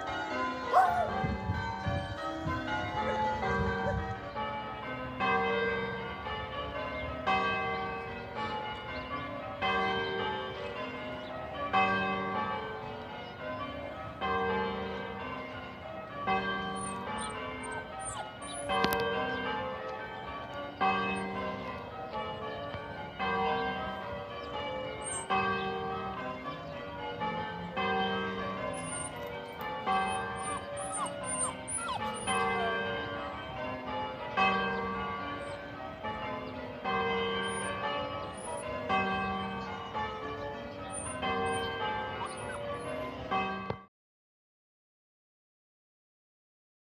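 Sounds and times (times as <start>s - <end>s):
church bells ringing: 0.0s - 43.9s.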